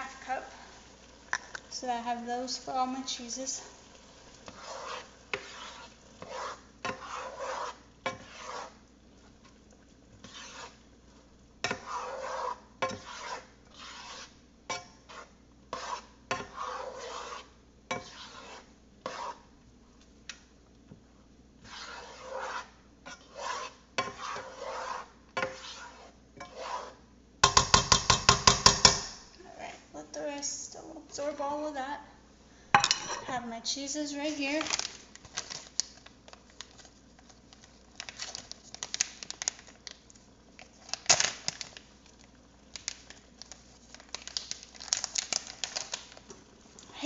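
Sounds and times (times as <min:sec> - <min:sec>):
utensil scraping rice in pan: 0:03.7 - 0:19.5, 0:21.6 - 0:28.9.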